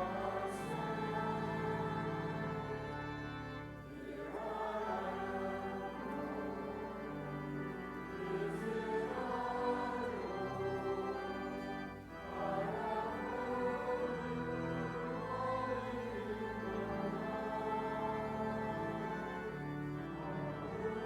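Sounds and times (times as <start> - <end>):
choir singing a hymn: 0.0 - 21.0.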